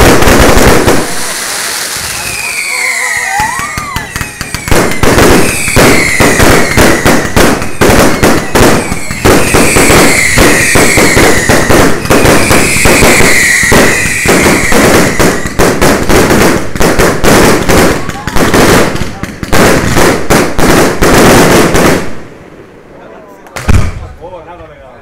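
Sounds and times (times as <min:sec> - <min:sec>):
firework crackling: 0:00.0 - 0:22.7
falling firework whistles: 0:01.0 - 0:15.6
firework shells bursting: 0:03.3 - 0:22.2.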